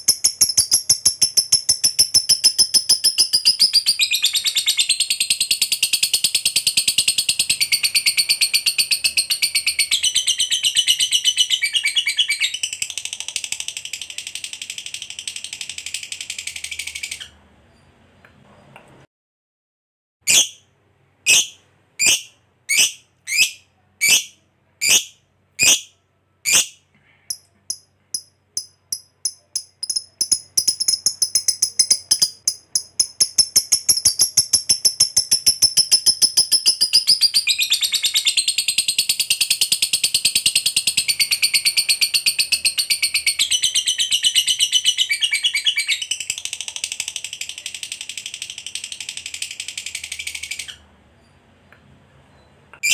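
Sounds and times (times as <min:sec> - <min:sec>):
lovebird chattering trill: 0:00.0 - 0:13.1, 0:20.3 - 0:20.6, 0:21.3 - 0:46.6.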